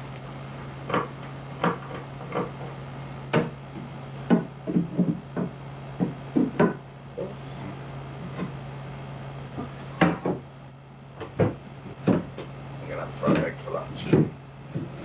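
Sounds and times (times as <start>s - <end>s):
steady low hum: 0.0s - 15.0s
wooden knocks and clunks: 0.9s - 6.8s, 9.6s - 10.4s, 11.2s - 12.5s, 13.2s - 15.0s.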